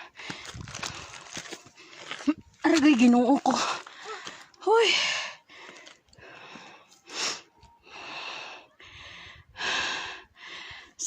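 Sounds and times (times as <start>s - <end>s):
person breathing hard: 0.0s - 2.2s, 3.6s - 11.0s.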